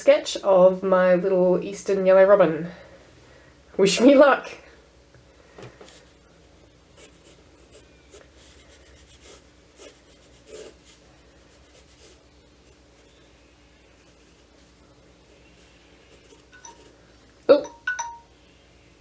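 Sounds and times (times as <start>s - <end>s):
pencil strokes scratching paper: 7.0s - 17.0s.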